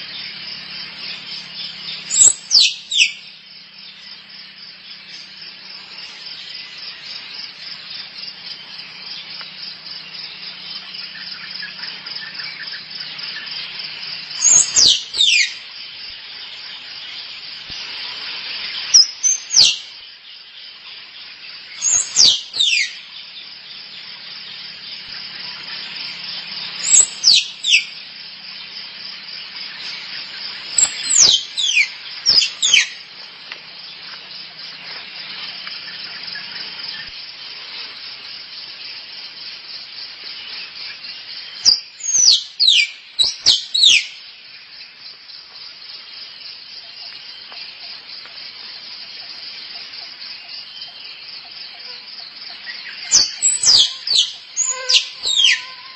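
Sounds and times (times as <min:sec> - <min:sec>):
insects chirring: 0:00.0 - 0:55.9
squirrel squeaking: 0:53.2 - 0:55.9.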